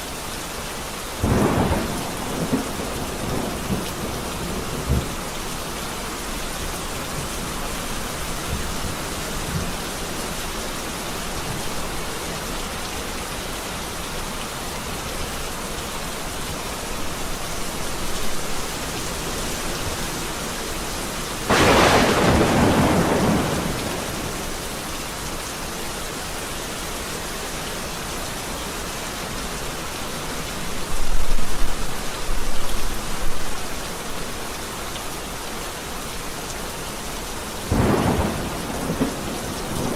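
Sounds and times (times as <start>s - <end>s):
heavy rain: 0.0s - 39.9s
close thunderclap: 1.2s - 5.2s, 21.5s - 24.5s, 37.7s - 39.9s
low rolling thunder: 1.2s - 5.2s, 21.5s - 24.6s, 37.7s - 39.9s.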